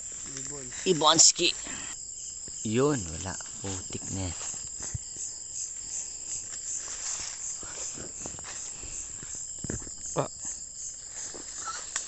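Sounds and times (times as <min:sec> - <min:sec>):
crickets chirping: 0:00.0 - 0:12.0
footsteps: 0:03.4 - 0:12.0.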